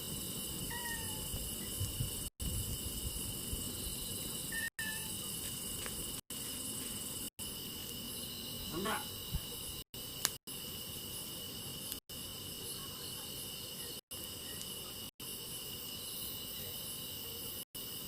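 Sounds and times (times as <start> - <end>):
crickets chirring: 0.0 - 18.0
wood fire crackling: 5.2 - 15.9.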